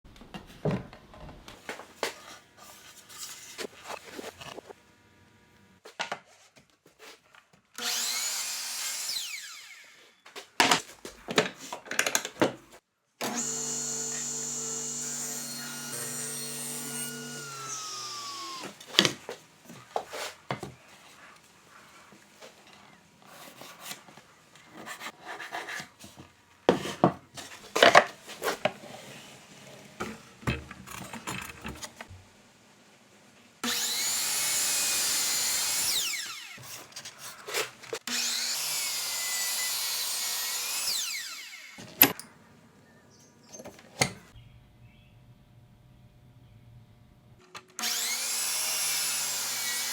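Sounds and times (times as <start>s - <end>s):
power tool motor winding down: 7.8s - 10.0s, 13.2s - 18.8s, 33.6s - 36.7s, 38.1s - 42.0s, 47.8s - 49.9s
power saw cutting wood: 7.8s - 10.2s, 13.2s - 19.1s, 33.6s - 42.2s, 47.8s - 49.9s.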